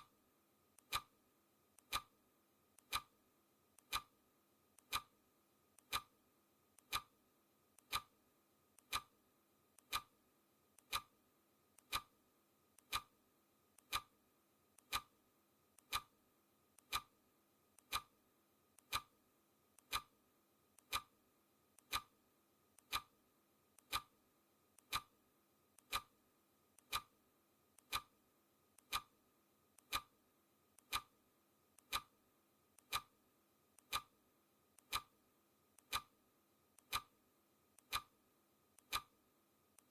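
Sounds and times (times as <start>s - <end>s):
clock ticking: 0.8s - 1.2s, 1.8s - 2.2s, 2.8s - 3.2s, 3.8s - 4.2s, 4.8s - 5.2s, 5.8s - 6.2s, 6.8s - 7.1s, 7.8s - 8.2s, 8.8s - 9.2s, 9.8s - 10.1s, 10.8s - 11.2s, 11.8s - 12.2s, 12.8s - 13.2s, 13.8s - 14.2s, 14.8s - 15.2s, 15.8s - 16.2s, 16.8s - 17.2s, 17.8s - 18.2s, 18.8s - 19.2s, 19.8s - 20.2s, 20.8s - 21.2s, 21.8s - 22.2s, 22.8s - 23.2s, 23.8s - 24.2s, 24.8s - 25.2s, 25.8s - 26.2s, 26.8s - 27.2s, 27.8s - 28.2s, 28.8s - 29.2s, 29.8s - 30.2s, 30.8s - 31.2s, 31.8s - 32.2s, 32.8s - 33.2s, 33.8s - 34.2s, 34.8s - 35.2s, 35.8s - 36.2s, 36.8s - 37.2s, 37.8s - 38.2s, 38.8s - 39.2s.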